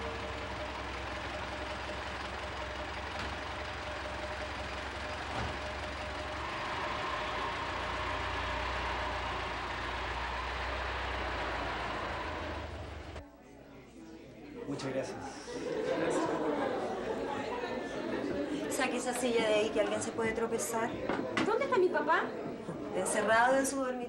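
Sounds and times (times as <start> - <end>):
car engine idling: 0.0 - 13.2.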